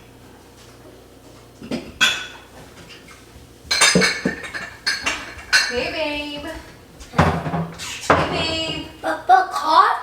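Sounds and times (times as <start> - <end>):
dishes and cutlery clattering: 1.6 - 8.9.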